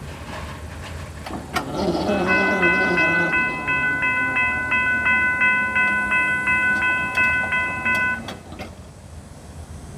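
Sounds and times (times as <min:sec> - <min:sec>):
railroad crossing bell ringing: 0:02.1 - 0:08.6.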